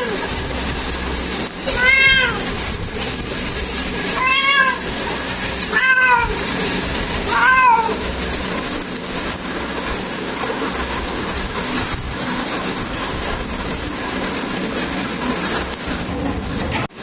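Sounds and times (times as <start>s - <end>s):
steady background noise: 0.0s - 17.0s
cat meowing: 1.6s - 2.6s, 4.2s - 4.9s, 5.7s - 6.5s, 7.2s - 8.0s.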